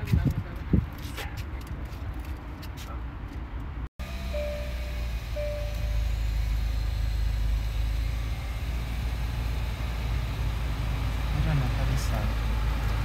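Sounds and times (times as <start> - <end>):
electronic dashboard chimes: 4.0 - 9.7
car engine idling: 4.0 - 13.0.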